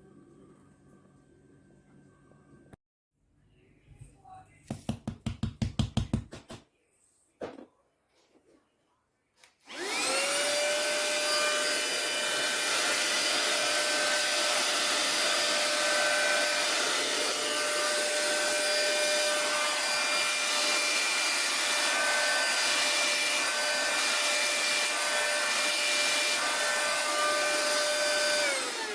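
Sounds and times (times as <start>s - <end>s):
handheld vacuum cleaner whining: 9.6s - 28.9s.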